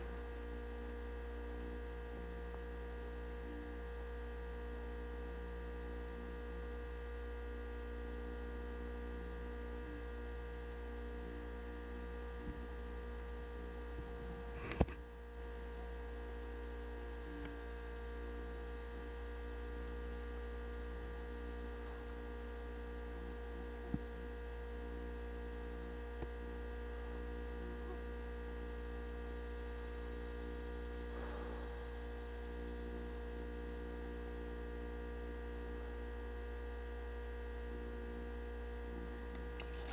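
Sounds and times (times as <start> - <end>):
steady electrical hum: 0.0 - 39.9
faint ticks: 17.3 - 17.6, 26.2 - 26.4.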